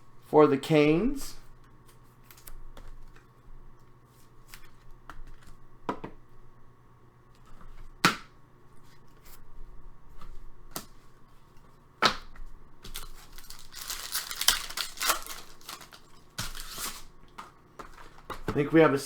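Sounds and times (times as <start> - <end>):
trading cards snapping: 12.0 - 18.5
foil pack crinkling and tearing: 12.8 - 18.3.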